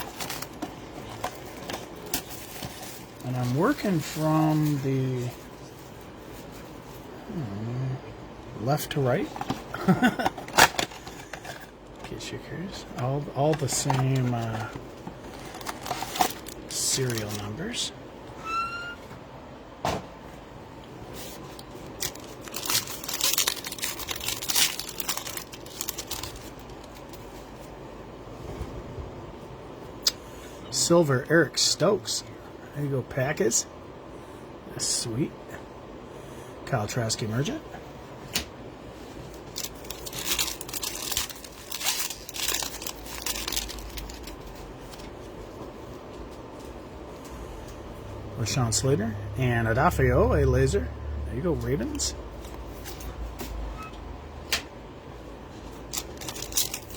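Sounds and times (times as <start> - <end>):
card pack wrappers crinkling: 0.0 - 6.6, 8.8 - 17.9, 21.2 - 27.4, 39.1 - 45.4, 55.6 - 56.9.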